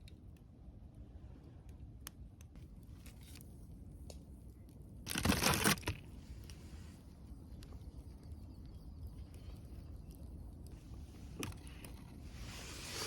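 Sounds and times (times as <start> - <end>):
faint scattered ticks: 7.2 - 12.2.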